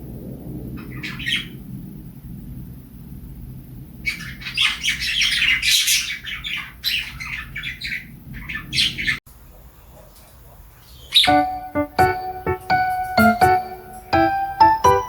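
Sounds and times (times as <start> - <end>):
parrots chirping and squawking: 0.8 - 1.6, 4.0 - 9.2, 10.8 - 11.7.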